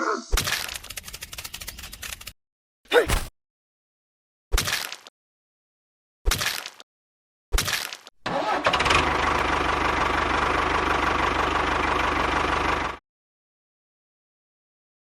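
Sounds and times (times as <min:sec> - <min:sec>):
engine cranking and running: 0:08.2 - 0:13.0.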